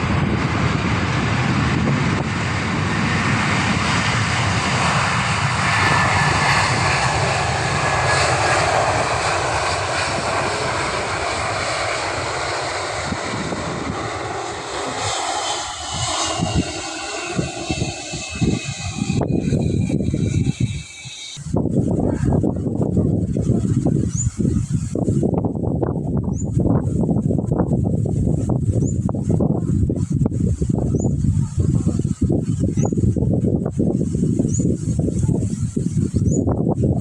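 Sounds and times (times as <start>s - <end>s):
falling jet whine: 0.0s - 25.0s
jet engines roaring: 0.0s - 26.2s
wind buffeting microphone: 0.0s - 37.0s.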